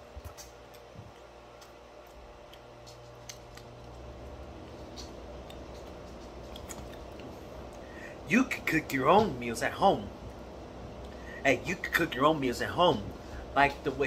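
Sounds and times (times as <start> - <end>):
steady low hum: 0.0 - 14.0
wet chewing clicks: 0.1 - 7.9.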